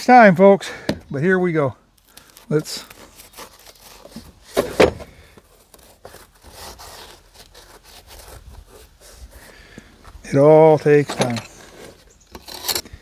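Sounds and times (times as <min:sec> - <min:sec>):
loud thump: 0:04.6 - 0:05.1
light knocks clicks and scrapes: 0:10.9 - 0:13.0.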